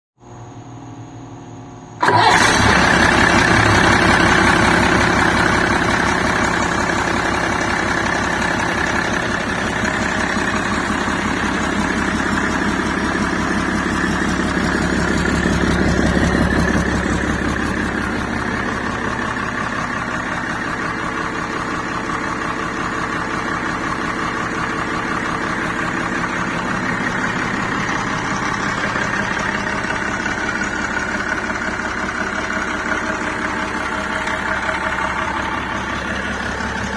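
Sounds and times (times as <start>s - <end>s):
diesel engine idling clatter: 2.0s - 36.9s.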